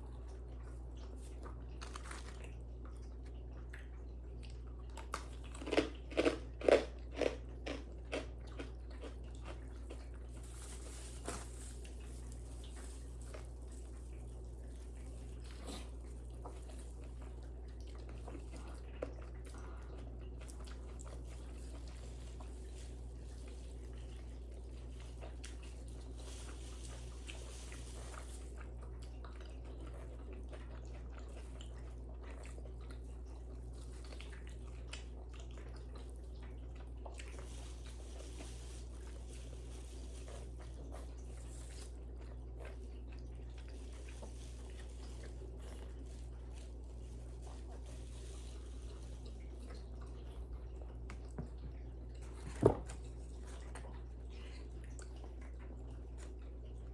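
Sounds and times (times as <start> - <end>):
crunchy bites and chewing: 1.4 - 2.7, 4.9 - 17.4.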